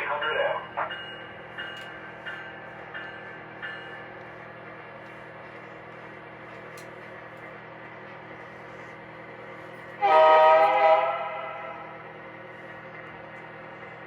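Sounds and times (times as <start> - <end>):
diesel horn blast: 10.0 - 12.0.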